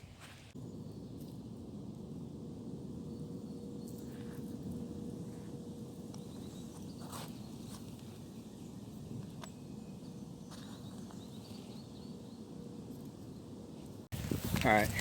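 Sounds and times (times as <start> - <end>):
small birds chirping: 3.0 - 14.0.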